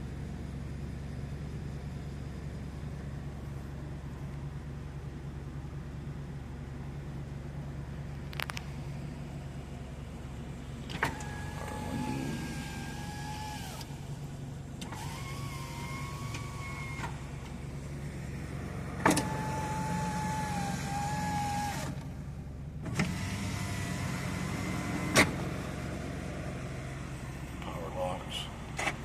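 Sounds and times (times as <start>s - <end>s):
car engine idling: 0.0s - 29.0s
electric motor whining: 11.0s - 17.2s, 19.0s - 22.0s.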